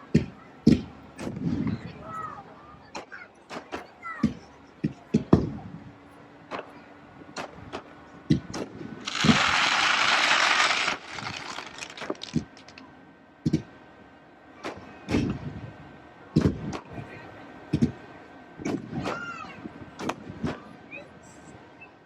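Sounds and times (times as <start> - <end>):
fireworks bangs: 8.5 - 12.8
loud firework hiss: 9.0 - 12.7.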